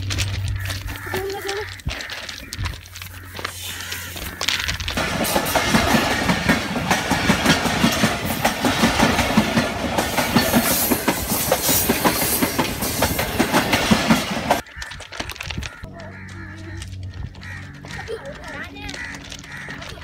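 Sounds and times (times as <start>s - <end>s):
wheels clattering over rail joints: 0.0s - 16.3s
train passing: 3.6s - 14.6s.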